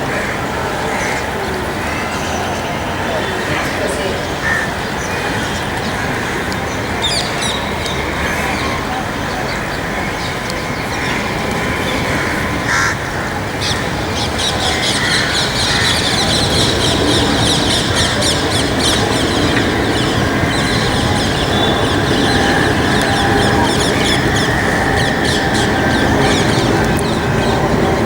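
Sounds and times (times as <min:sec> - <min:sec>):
many birds chirping: 0:00.0 - 0:28.0
steady low roar: 0:07.6 - 0:28.0.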